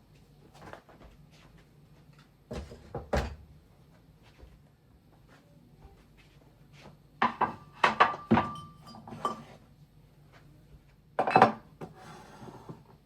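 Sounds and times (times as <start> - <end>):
dishes and cutlery clattering: 7.2 - 9.6, 11.2 - 12.0.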